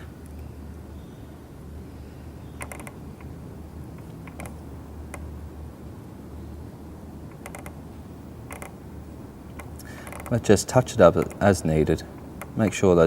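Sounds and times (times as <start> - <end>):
steady low hum: 0.0 - 13.0
clicks and creaks of thread work: 2.6 - 3.3, 4.0 - 5.3, 7.3 - 7.8, 8.5 - 8.8, 9.5 - 10.4, 11.2 - 11.5.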